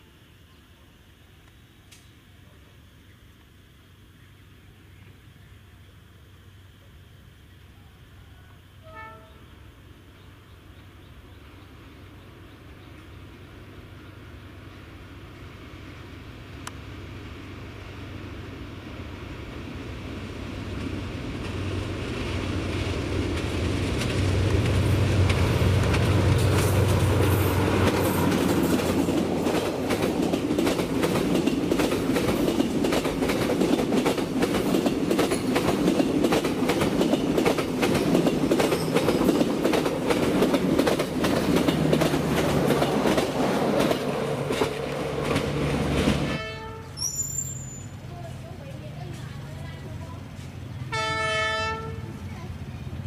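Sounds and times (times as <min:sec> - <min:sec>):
wheels clickety-clack on rail joints: 0:20.5 - 0:53.0.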